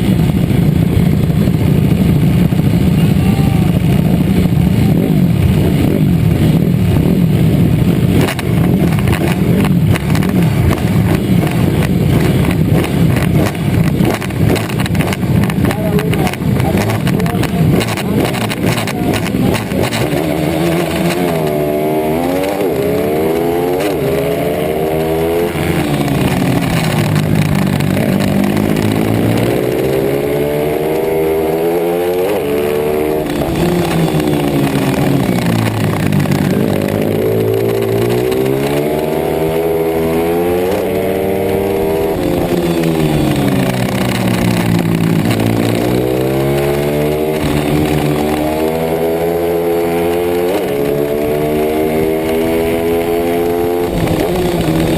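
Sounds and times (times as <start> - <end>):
motorbike engine revving: 0.0 - 54.9.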